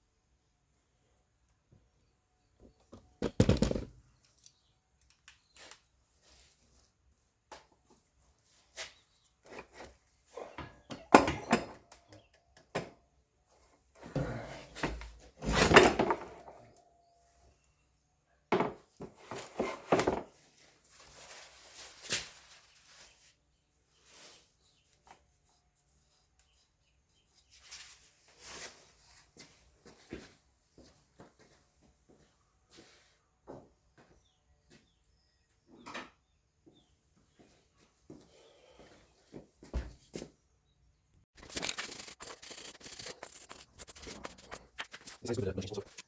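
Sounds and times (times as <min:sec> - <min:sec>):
hand tools and metal parts clattering: 0:08.7 - 0:13.1, 0:13.9 - 0:17.0.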